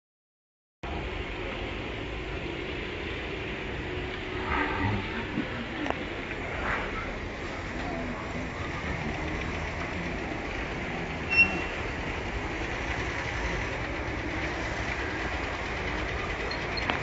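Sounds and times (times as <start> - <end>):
short high squeak: 11.3 - 11.8.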